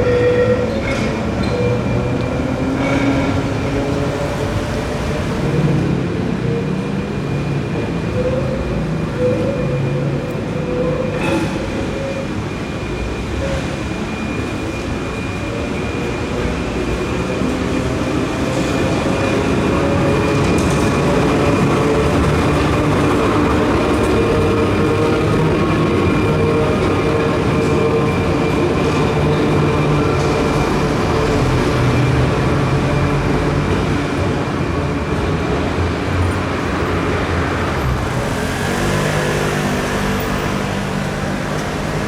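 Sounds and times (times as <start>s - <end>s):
tram rumbling: 0.0s - 42.0s
faint whining tones: 3.2s - 7.0s.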